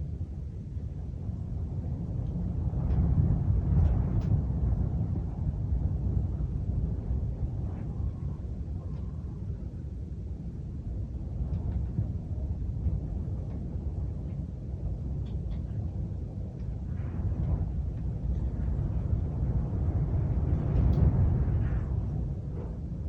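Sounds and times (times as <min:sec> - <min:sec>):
strong gusting wind: 0:00.0 - 0:23.0
faint rain ticks: 0:02.2 - 0:03.1, 0:03.8 - 0:04.4, 0:15.2 - 0:20.1, 0:20.7 - 0:21.8.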